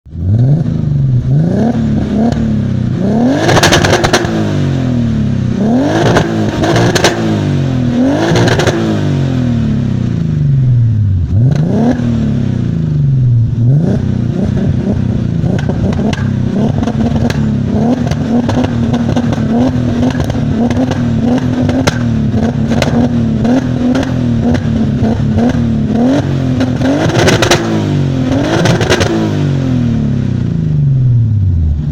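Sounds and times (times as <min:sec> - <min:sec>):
car engine revving and idling: 0:00.1 - 0:31.9
exhaust crackles: 0:05.4 - 0:29.4.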